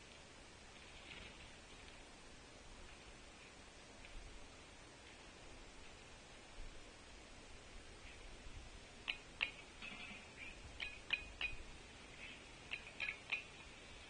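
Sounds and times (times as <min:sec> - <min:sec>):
faint bird chirps: 0:09.0 - 0:14.0
woodpecker tapping: 0:09.0 - 0:14.0.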